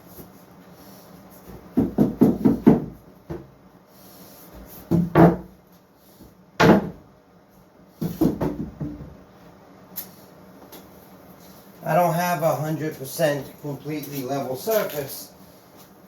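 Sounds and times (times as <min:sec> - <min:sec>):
wooden boards knocking: 0:01.8 - 0:03.5, 0:04.9 - 0:05.5, 0:06.6 - 0:07.0, 0:08.0 - 0:09.2.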